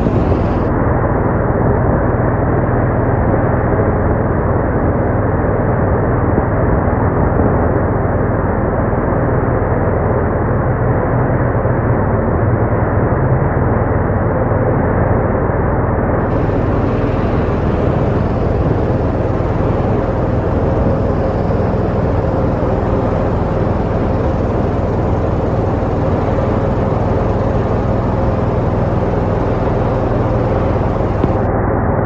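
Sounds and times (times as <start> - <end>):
boat engine running: 0.0 - 0.9, 16.2 - 31.6.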